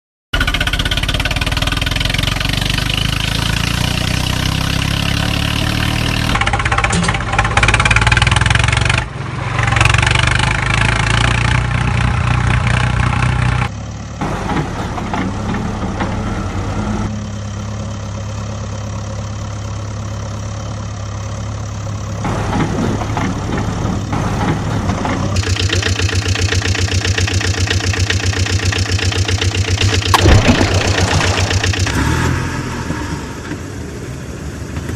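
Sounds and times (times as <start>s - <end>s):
engine idling and revving: 0.4s - 34.9s
fast even engine chugging: 25.4s - 32.4s.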